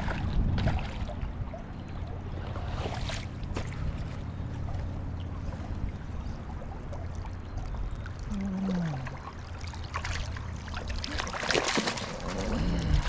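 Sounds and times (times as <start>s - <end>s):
river water flowing: 0.0s - 13.0s
fish splashing at surface: 8.3s - 13.0s
low rumble: 12.0s - 13.0s.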